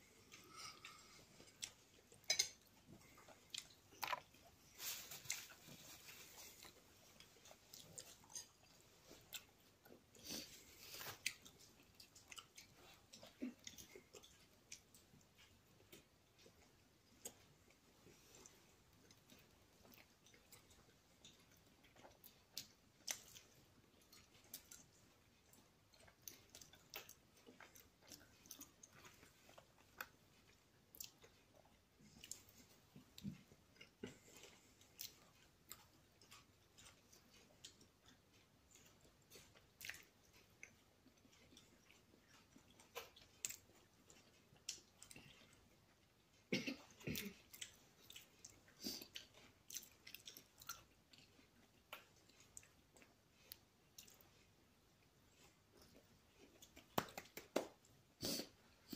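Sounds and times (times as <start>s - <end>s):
wet mouth clicks and smacks: 56.6s - 58.5s.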